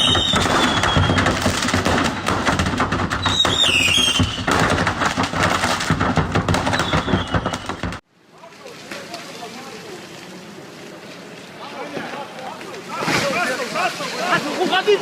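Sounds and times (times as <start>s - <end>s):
high downward-sliding whistles: 0.0s - 1.4s, 3.2s - 4.5s, 6.8s - 7.7s
debris striking and rattling: 0.0s - 8.0s.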